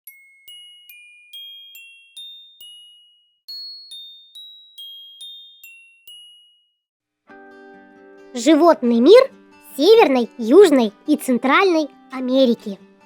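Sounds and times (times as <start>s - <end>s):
bell-like chime melody: 0.1s - 6.9s.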